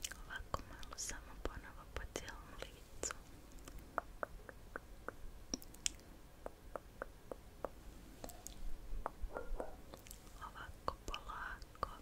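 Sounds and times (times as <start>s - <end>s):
wet mouth clicks and smacks: 3.5s - 8.6s.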